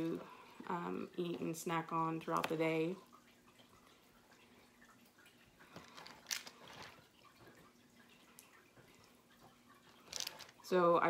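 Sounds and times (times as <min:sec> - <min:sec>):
faint steady hum: 0:00.0 - 0:11.0
soft clicks and scrapes: 0:08.4 - 0:10.6.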